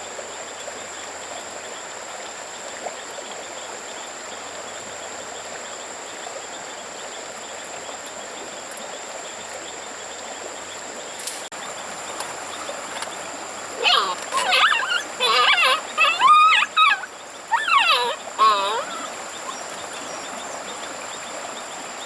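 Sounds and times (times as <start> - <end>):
crickets droning: 0.0 - 22.0
stream rushing: 10.9 - 22.0.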